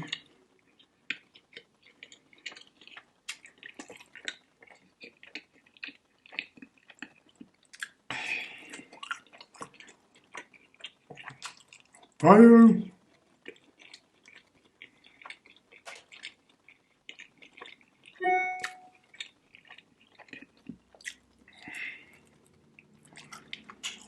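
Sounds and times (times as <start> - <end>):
wet chewing with lip smacks: 0.1 - 8.0, 8.6 - 12.2, 13.4 - 18.2, 18.8 - 24.0
short breath: 21.5 - 22.2.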